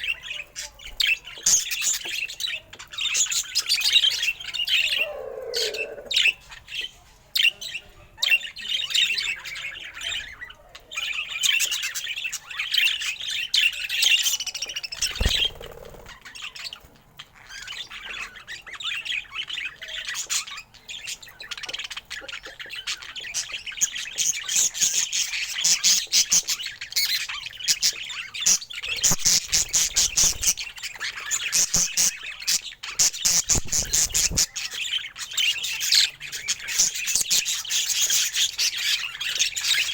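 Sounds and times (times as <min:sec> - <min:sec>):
budgerigar chattering: 0:31.3 - 0:39.9.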